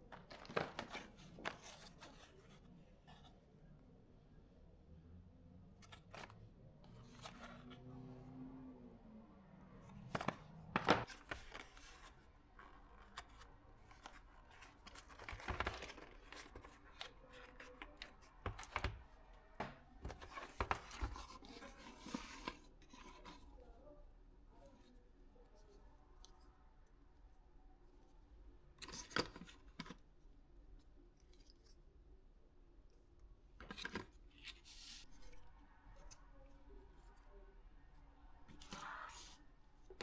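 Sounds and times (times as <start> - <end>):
clicks and knocks of handled contents: 0.0 - 2.1, 10.0 - 23.4.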